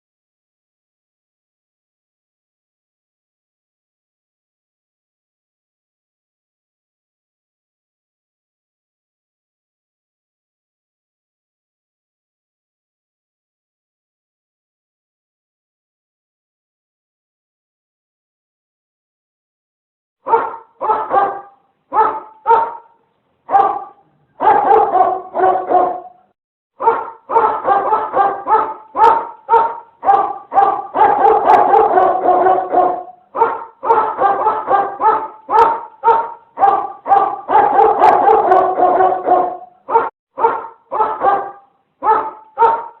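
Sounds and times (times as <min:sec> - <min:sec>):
dog barking: 0:20.2 - 0:43.0.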